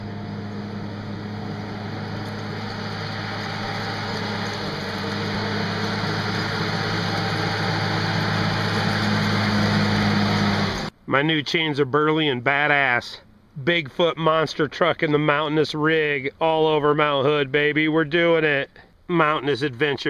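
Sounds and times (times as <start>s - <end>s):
engine running steadily: 0.0s - 10.9s.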